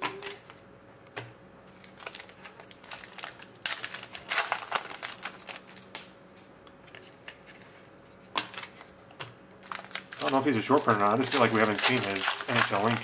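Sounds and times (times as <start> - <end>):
wrapper crinkling: 1.7 - 6.1, 9.6 - 13.0
cards rustling and clicking: 9.7 - 13.0.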